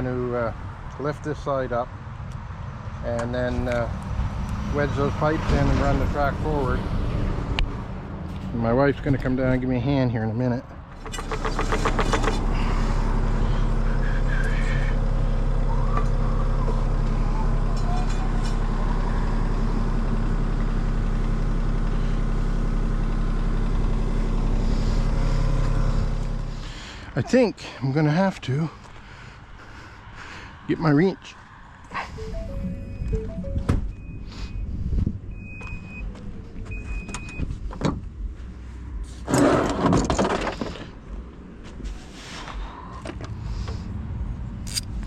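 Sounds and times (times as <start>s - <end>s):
diesel engine idling: 3.3s - 27.8s, 31.9s - 39.2s
heavy machine rumbling: 3.4s - 9.8s, 10.8s - 27.1s.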